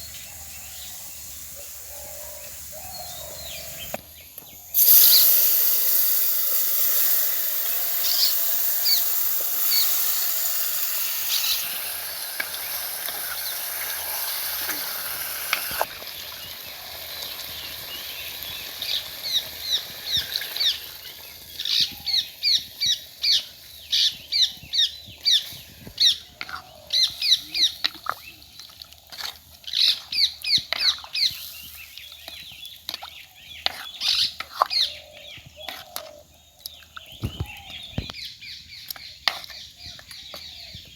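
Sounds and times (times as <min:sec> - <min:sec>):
steady hiss: 0:00.0 - 0:26.2
birds chirping: 0:00.0 - 0:40.9.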